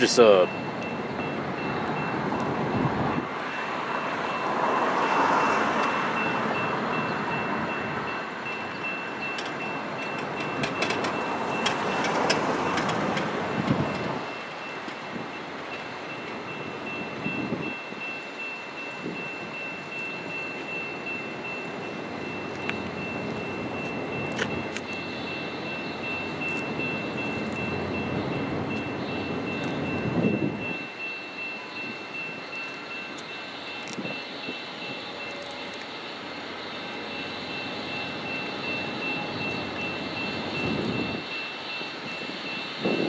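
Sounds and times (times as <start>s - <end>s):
thin steady high tone: 0.0s - 2.8s, 14.2s - 43.0s
distant freight train rumble: 0.0s - 43.0s.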